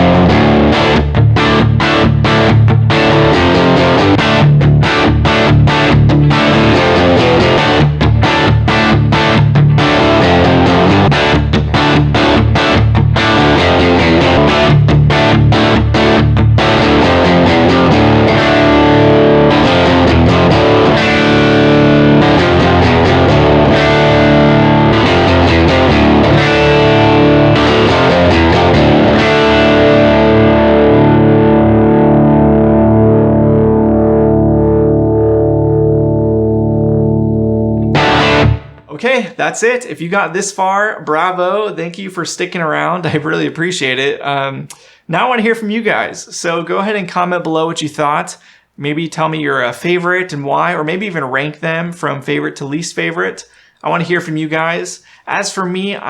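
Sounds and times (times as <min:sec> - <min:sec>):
overdriven electric guitar chords: 0:00.0 - 0:38.9.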